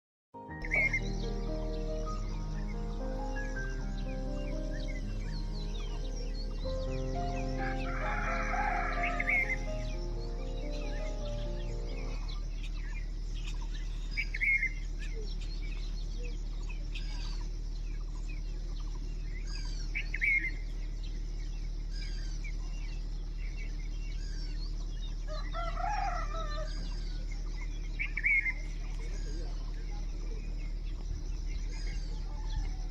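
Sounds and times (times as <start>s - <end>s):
small birds chirping: 0.4s - 32.9s
rooster crowing: 3.4s - 12.3s, 25.3s - 27.3s.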